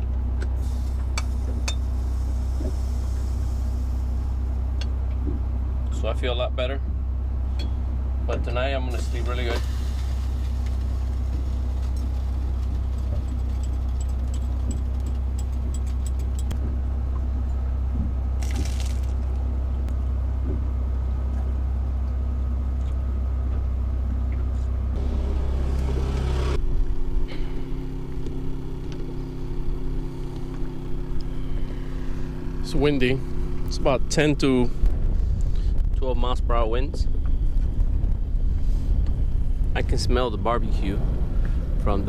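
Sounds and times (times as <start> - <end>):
low machine hum: 0.0 - 42.0
wind buffeting microphone: 33.4 - 42.0.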